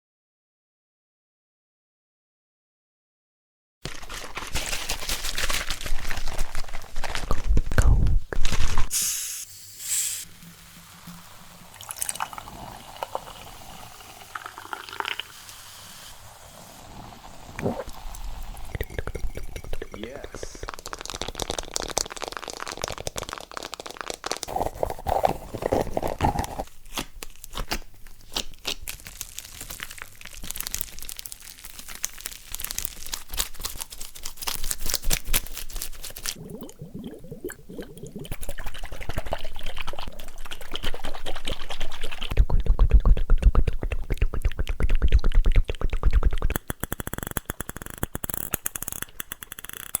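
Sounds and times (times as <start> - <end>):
crackling crunching clicks: 46.4 - 50.0.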